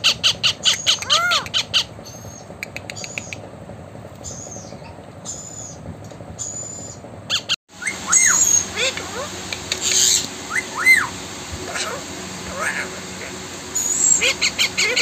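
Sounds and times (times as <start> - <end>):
parakeet squawking: 0.0 - 2.4, 7.3 - 11.1, 11.7 - 15.0
parakeet whistling: 6.4 - 8.8, 9.8 - 11.1, 13.7 - 15.0.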